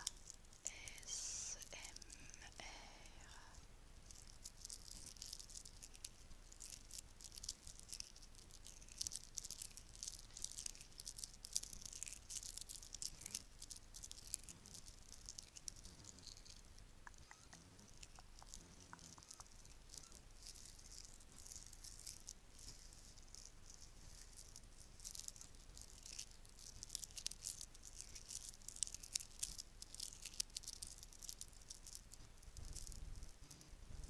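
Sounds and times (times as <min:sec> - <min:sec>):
bracelets rattling and clinking: 0:17.2 - 0:33.4.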